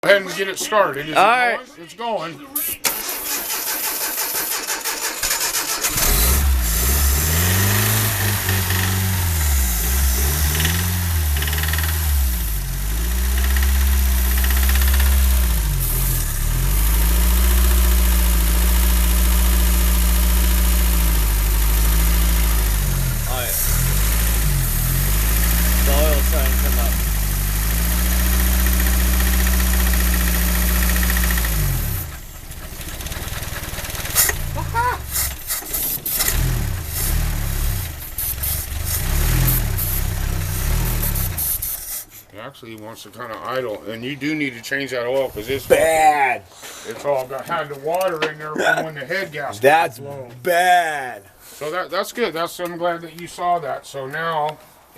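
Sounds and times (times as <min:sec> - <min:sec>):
starter motor cranking: 0:02.6 - 0:42.2
pickup engine running: 0:03.1 - 0:42.2.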